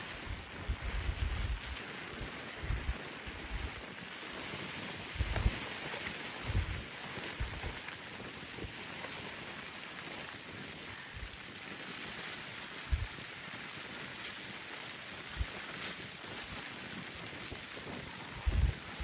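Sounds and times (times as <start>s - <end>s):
wind gusts buffeting microphone: 0.0s - 3.8s, 4.5s - 7.8s, 12.9s - 13.2s, 17.6s - 19.0s
blizzard wind and blowing snow: 0.0s - 19.0s.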